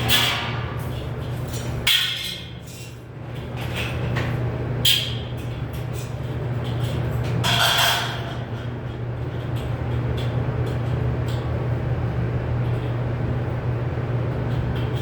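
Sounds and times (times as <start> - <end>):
sheet metal clanks: 7.4 - 8.4.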